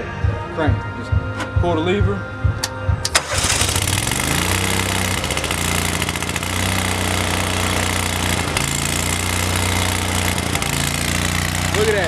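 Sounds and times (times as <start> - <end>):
welder-generator engine running: 3.0 - 12.0.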